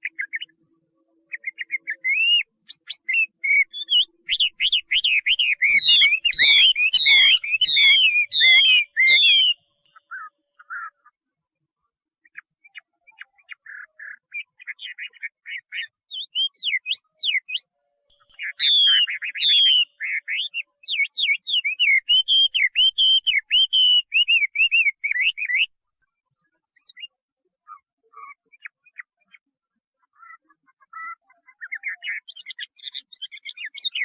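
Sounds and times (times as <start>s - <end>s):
bird singing whistles: 1.3s - 10.8s, 12.6s - 25.7s, 31.0s - 34.0s.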